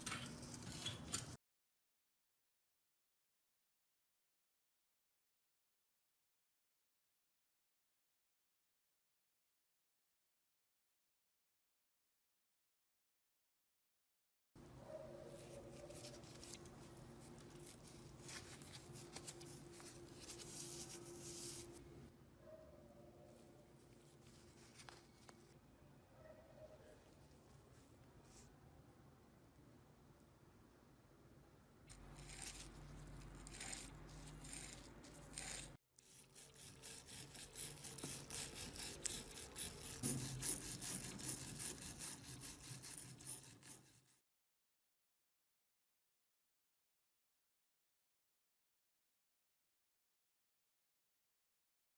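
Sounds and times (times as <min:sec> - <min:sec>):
hand scraping and rubbing: 0:15.1 - 0:22.1, 0:23.6 - 0:25.6, 0:31.9 - 0:44.2.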